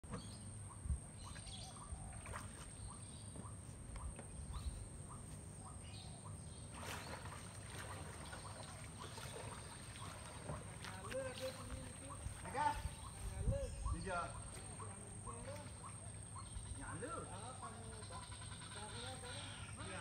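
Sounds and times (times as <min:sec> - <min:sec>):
small bird chirping: 0:00.1 - 0:07.4
paddle splashing water: 0:05.6 - 0:13.3, 0:14.4 - 0:16.5.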